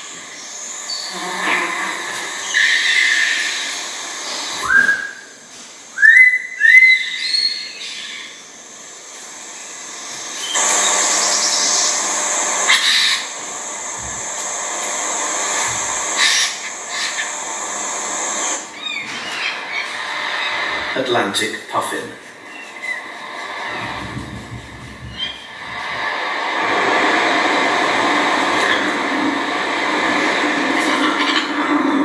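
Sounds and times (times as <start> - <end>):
steady hissing: 0.0 - 32.0
bird whistling rising calls: 4.5 - 8.6, 18.2 - 20.9.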